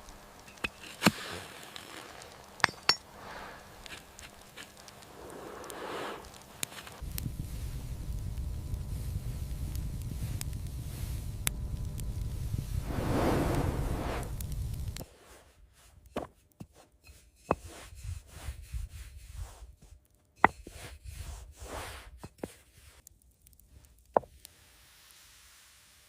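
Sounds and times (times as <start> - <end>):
food handling clicks and rubbing: 0.1 - 7.0
loud rushing noise: 12.8 - 14.3.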